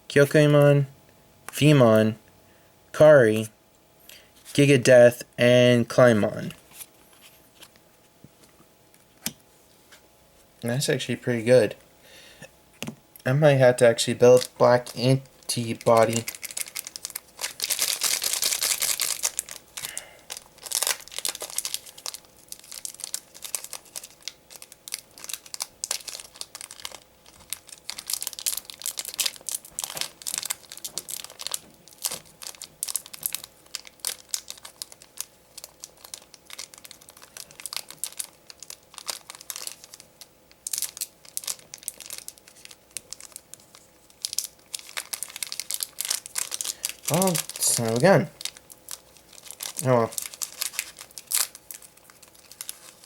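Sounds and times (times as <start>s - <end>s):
wrapper and cards crinkling: 14.0s - 53.0s
foil pack tearing: 14.3s - 53.0s.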